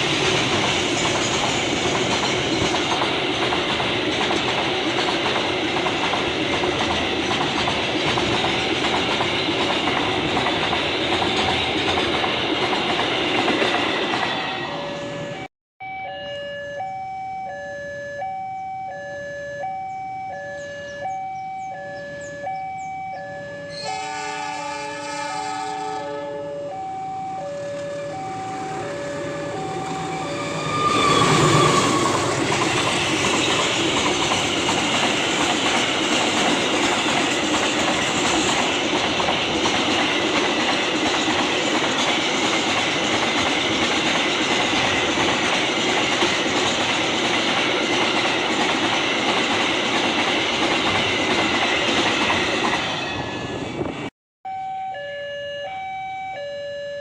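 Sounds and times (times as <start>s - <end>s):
train wheels on rails: 0.0s - 15.5s, 27.5s - 54.1s
two-tone crossing alarm: 14.1s - 34.4s, 54.4s - 57.0s.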